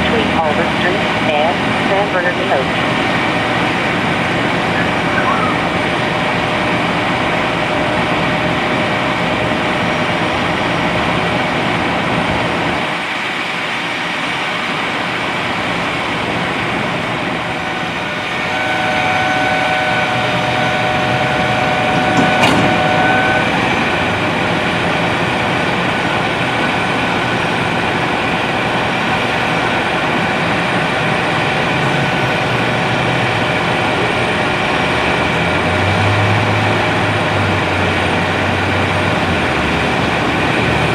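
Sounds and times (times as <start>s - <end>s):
heavy vehicle engines rumbling: 0.0s - 40.9s
steady high tone: 4.4s - 6.5s, 17.2s - 34.9s.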